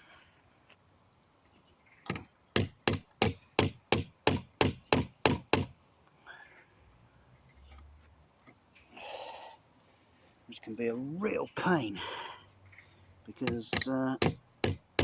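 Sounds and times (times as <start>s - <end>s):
hammer striking nails in wood: 2.0s - 5.8s, 13.4s - 15.0s.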